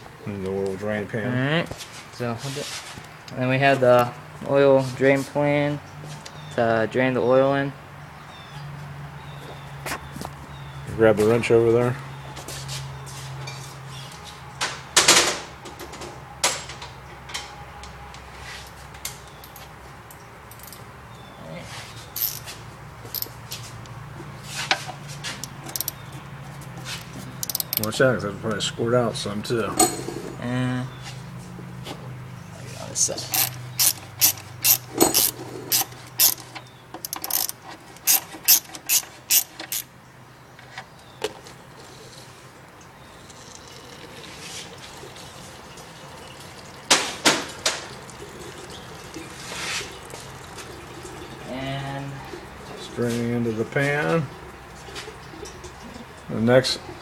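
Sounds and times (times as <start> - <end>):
wrench clinking and knocking: 22.2 - 22.5, 23.1 - 23.4, 25.4 - 26.0, 27.4 - 27.9, 29.7 - 30.4, 33.3 - 39.9.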